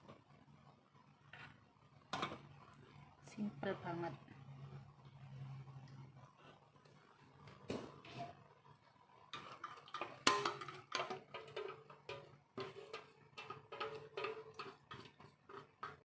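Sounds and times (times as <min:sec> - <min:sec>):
utensils clinking against dishes: 0:09.4 - 0:14.8.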